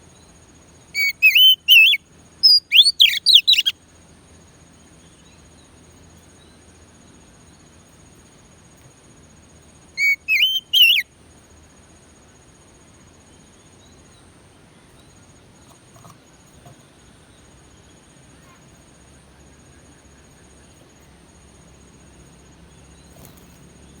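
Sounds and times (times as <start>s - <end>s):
bird whistled song: 0.9s - 3.8s, 10.0s - 11.1s.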